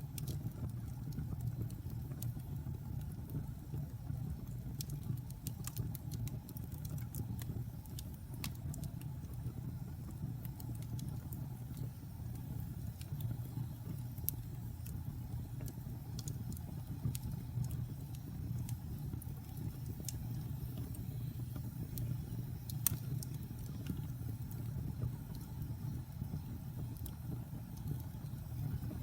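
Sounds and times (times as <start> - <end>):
fire flames rumbling: 0.0 - 29.0
wood fire crackling and popping: 0.0 - 29.0.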